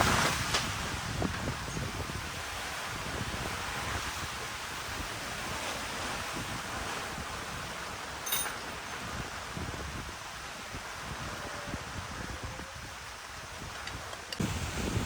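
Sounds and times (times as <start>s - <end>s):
steady hiss: 0.0s - 12.1s, 12.8s - 15.0s
wind buffeting microphone: 0.0s - 15.0s
light clink: 8.2s - 8.7s.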